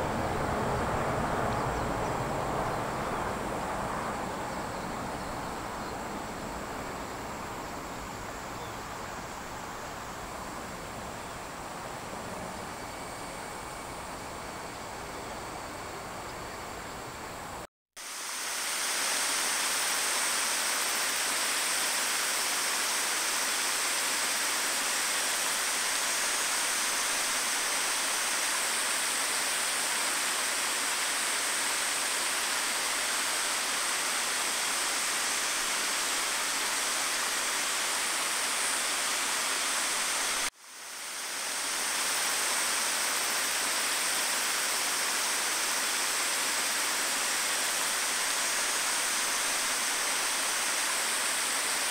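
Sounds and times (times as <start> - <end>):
river water flowing: 0.0 - 51.9.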